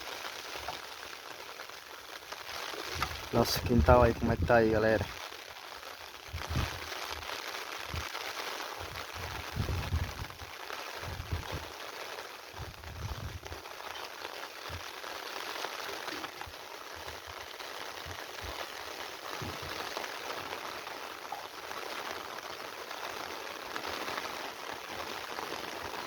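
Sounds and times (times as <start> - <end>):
steady rain falling: 0.0 - 26.0
low thumps on microphone: 19.4 - 19.8.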